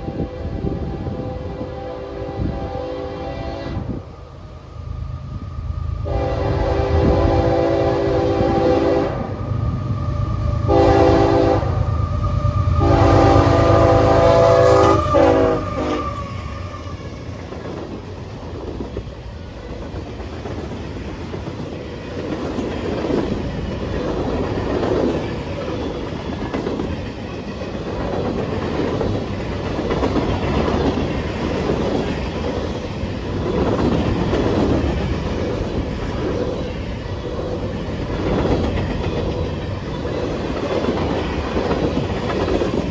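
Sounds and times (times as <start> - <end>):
locomotive horn blasts: 0.0 - 4.0, 6.0 - 9.5, 10.4 - 16.4
train wheels clickety-clack: 6.0 - 42.9.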